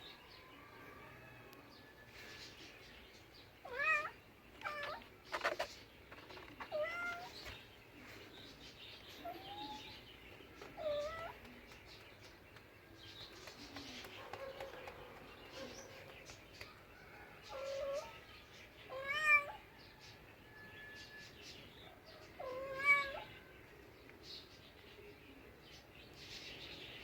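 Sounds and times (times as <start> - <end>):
cat meowing: 3.6 - 5.0, 6.7 - 7.3, 18.9 - 19.6, 22.4 - 23.3.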